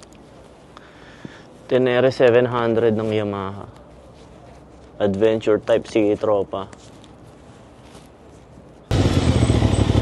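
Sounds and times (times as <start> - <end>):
motorcycle engine running: 8.9 - 10.0.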